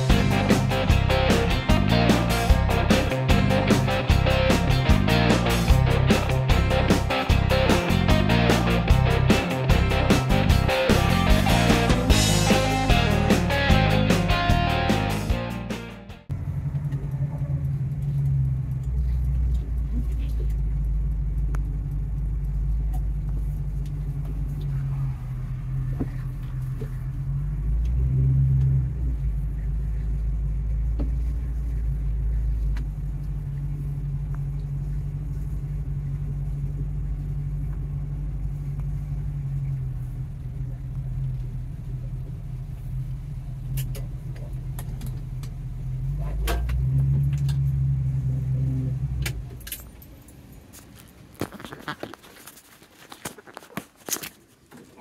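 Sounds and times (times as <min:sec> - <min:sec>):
car engine rumbling from inside: 0:00.0 - 0:15.3, 0:16.2 - 0:55.0.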